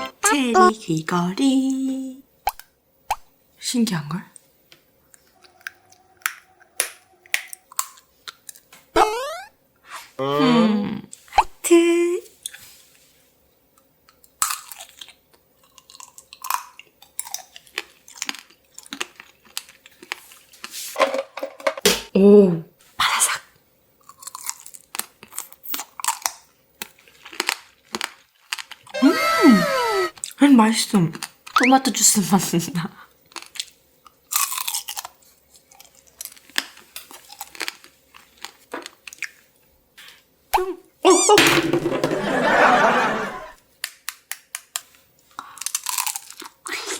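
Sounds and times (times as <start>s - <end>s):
candy shell cracking: 5.1s - 8.7s, 43.8s - 46.6s
crisp crunching and chewing: 7.3s - 8.7s, 14.1s - 20.8s, 24.0s - 29.0s, 33.3s - 40.2s, 44.7s - 46.8s.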